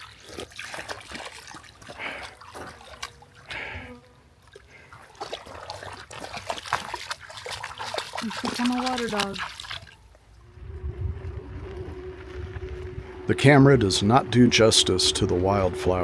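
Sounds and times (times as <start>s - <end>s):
dog splashing in water: 0.0s - 3.7s, 4.4s - 10.2s.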